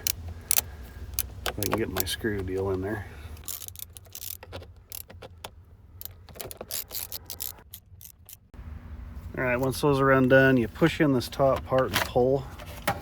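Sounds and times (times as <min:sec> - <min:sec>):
screwdriver clicks and ticks: 0:00.0 - 0:02.5, 0:03.4 - 0:08.5.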